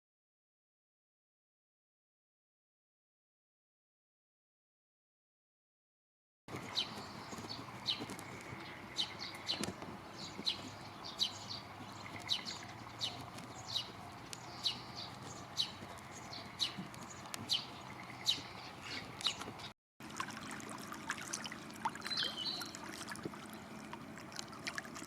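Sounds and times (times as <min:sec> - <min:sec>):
bird calling: 0:06.5 - 0:19.7, 0:21.3 - 0:25.0.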